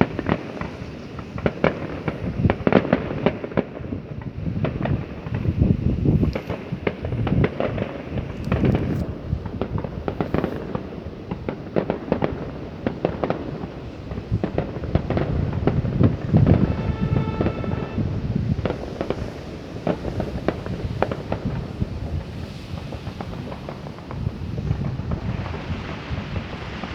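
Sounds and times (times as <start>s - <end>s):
fireworks bangs and booms: 0.0s - 26.9s
short pitched tone: 16.3s - 18.3s.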